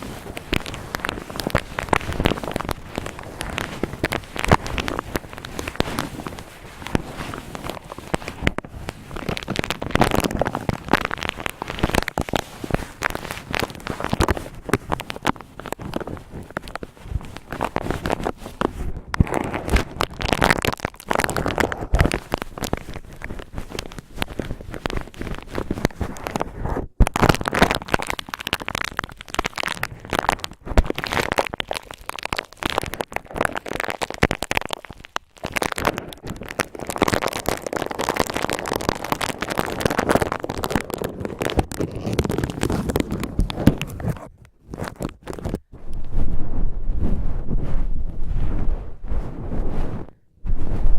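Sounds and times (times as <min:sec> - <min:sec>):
cotton rubbed against microphone: 0:00.0 - 0:26.9, 0:38.9 - 0:50.9.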